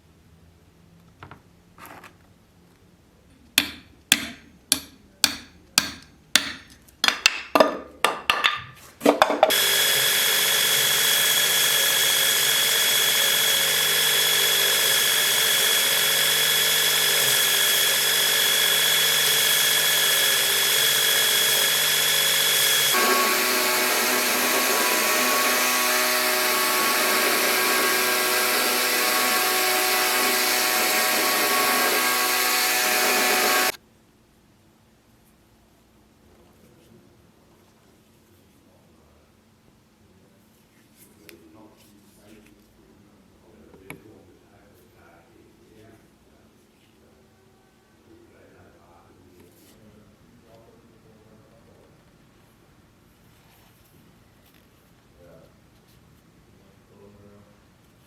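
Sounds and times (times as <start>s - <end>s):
hammer striking metal: 3.6s - 7.5s
power tool whining: 9.5s - 33.8s.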